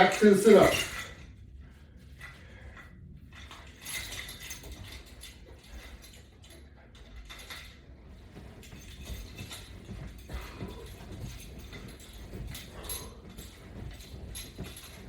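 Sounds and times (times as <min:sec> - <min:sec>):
workout gear clicking and rustling: 0:00.0 - 0:15.0.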